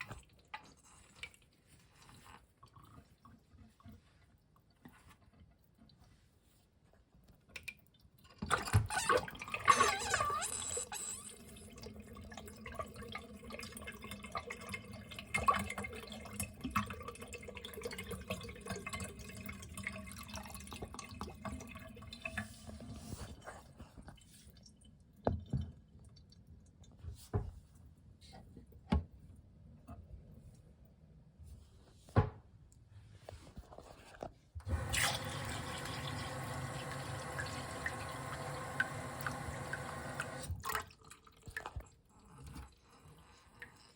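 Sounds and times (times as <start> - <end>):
toilet flushing: 8.5 - 23.2, 34.6 - 41.0.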